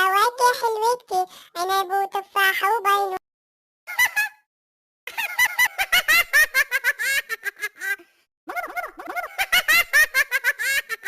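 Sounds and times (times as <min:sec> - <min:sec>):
high-pitched voice giggling: 0:07.4 - 0:11.0.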